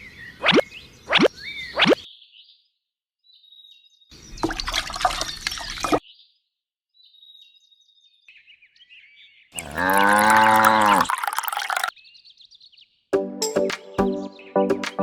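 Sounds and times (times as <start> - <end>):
water splashing and pouring: 4.4 - 6.0, 9.6 - 11.9.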